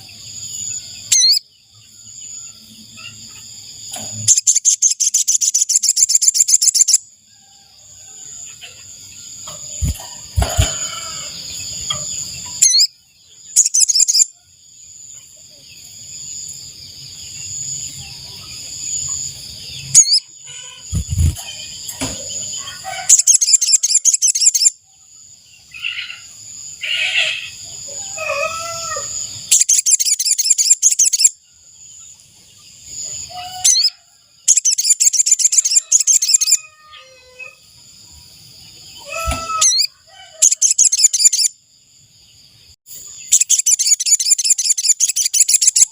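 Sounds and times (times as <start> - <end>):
bird trilling: 1.1 - 1.4, 4.3 - 7.0, 12.5 - 12.9, 13.5 - 14.3, 19.8 - 21.7, 23.1 - 24.7, 29.5 - 31.3, 33.4 - 37.6, 39.0 - 41.5, 43.3 - 45.9
low bending bird calls: 19.8 - 22.5.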